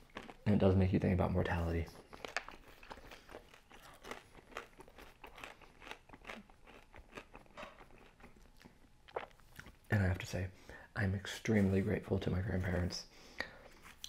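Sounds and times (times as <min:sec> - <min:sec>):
crunchy pizza chewing: 0:01.5 - 0:09.8.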